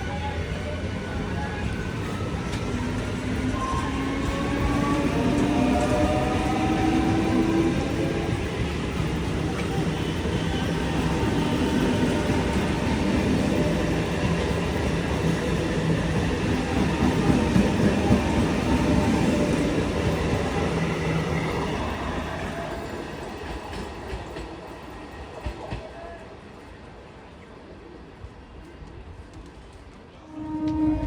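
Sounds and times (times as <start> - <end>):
train rumbling past: 0.0 - 27.5.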